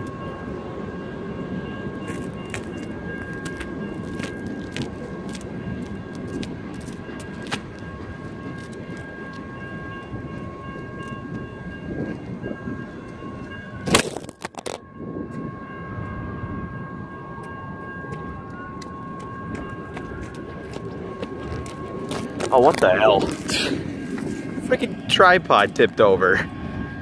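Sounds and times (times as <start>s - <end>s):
freight train rumbling: 0.0s - 27.0s
tripod striking the ground: 13.9s - 14.8s.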